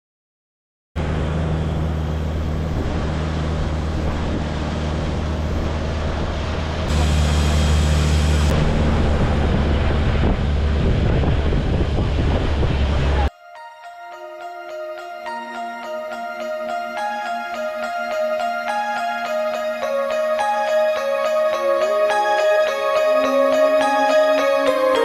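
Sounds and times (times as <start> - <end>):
boat engine running: 1.0 - 13.3
wind buffeting microphone: 1.8 - 13.3.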